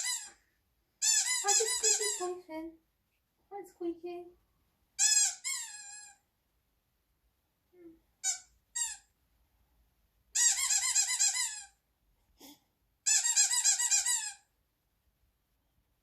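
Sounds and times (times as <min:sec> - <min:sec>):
squeaky dog toy: 0:00.0 - 0:00.4, 0:01.0 - 0:02.4, 0:05.0 - 0:06.2, 0:08.2 - 0:09.1, 0:10.3 - 0:11.8, 0:13.0 - 0:14.5.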